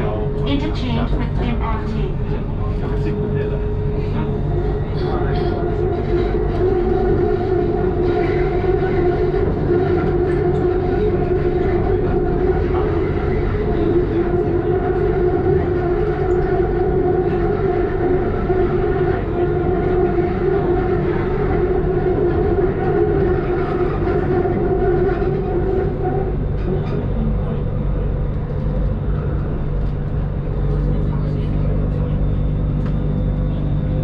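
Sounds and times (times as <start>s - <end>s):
train motor whine: 0.0s - 34.0s
train rumble: 0.0s - 34.0s.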